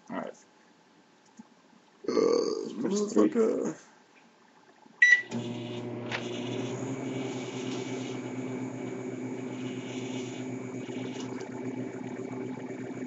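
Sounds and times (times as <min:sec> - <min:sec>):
microwave oven humming: 0:05.0 - 0:13.0
microwave fan whooshing: 0:05.2 - 0:13.0.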